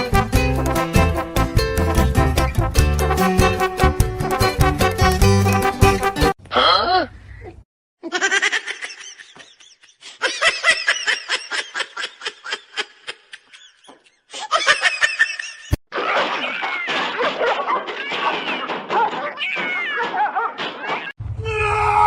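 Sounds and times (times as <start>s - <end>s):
person laughing hard: 8.0s - 19.1s.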